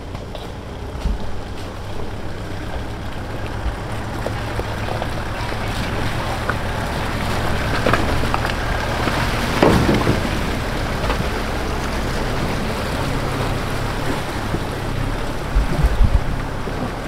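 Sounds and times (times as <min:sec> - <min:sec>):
off-road vehicle engine running: 0:00.0 - 0:17.0
steady rushing noise: 0:00.0 - 0:17.0.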